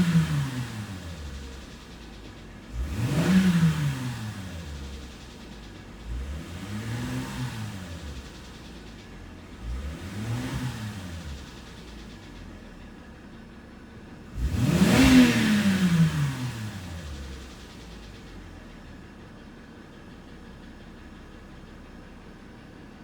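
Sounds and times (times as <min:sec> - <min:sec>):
car engine revving: 0:00.0 - 0:12.8, 0:14.0 - 0:19.4.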